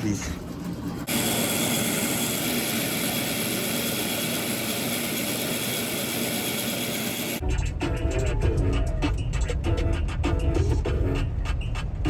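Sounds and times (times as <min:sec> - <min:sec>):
drain machine motor running: 0:00.0 - 0:07.4.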